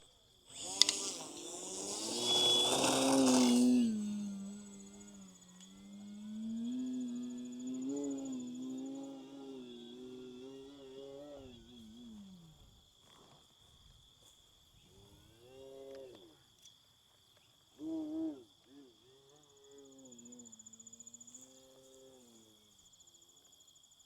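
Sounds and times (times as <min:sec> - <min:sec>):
model plane electric motor: 0:00.0 - 0:12.7
crickets trilling: 0:00.0 - 0:24.0.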